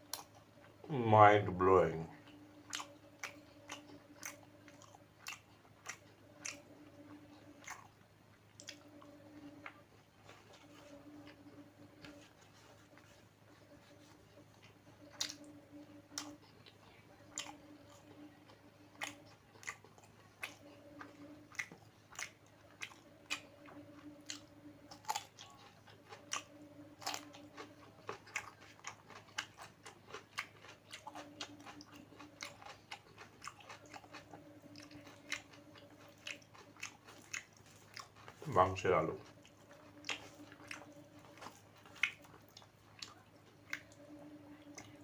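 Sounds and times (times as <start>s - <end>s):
close chewing with mouth clicks: 0.0s - 0.8s, 2.2s - 45.0s
crunching food: 1.9s - 45.0s.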